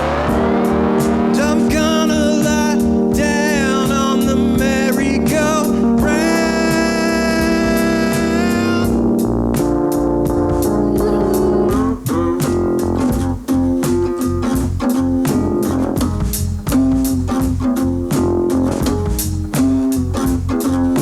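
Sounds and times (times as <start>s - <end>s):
bass guitar: 0.0s - 21.0s
drums steady beat: 0.0s - 21.0s
electric guitar bending notes: 0.0s - 21.0s.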